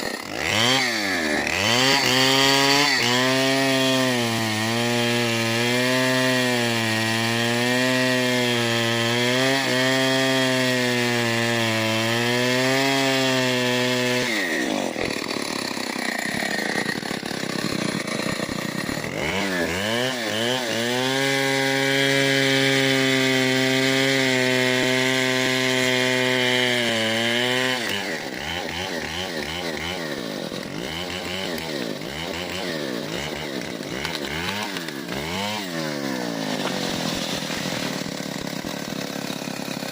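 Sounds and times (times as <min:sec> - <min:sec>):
chainsaw cutting through wood: 0:00.0 - 0:39.9.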